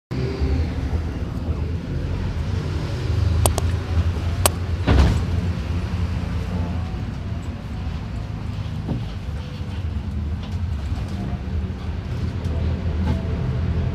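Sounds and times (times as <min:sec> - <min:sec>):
bus diesel engine droning: 0:00.1 - 0:13.9
sharp clicks: 0:03.4 - 0:03.8.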